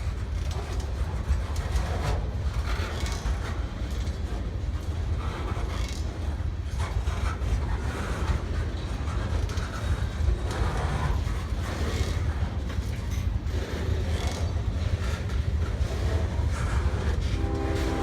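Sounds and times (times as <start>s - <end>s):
freight train rumbling by: 0.0s - 18.0s
rail noise: 0.0s - 18.0s
locomotive horn: 17.2s - 18.0s.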